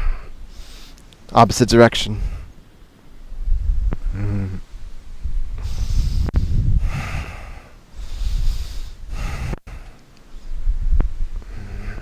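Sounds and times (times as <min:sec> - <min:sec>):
person breathing deeply: 0:00.0 - 0:01.0, 0:04.0 - 0:04.8, 0:05.5 - 0:10.0, 0:11.4 - 0:12.0.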